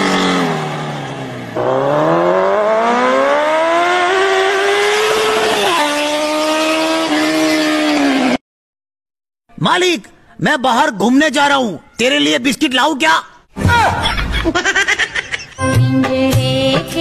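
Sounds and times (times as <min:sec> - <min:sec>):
racing car engine accelerating: 0:00.0 - 0:08.4.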